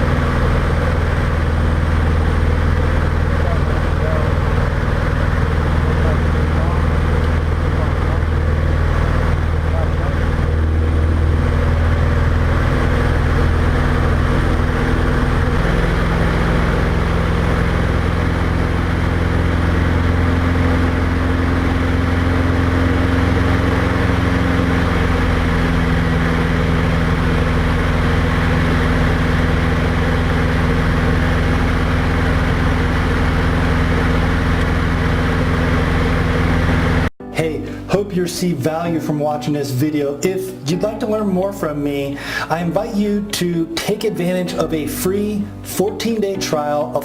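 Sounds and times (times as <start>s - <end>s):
light aircraft engine droning: 0.0s - 38.1s.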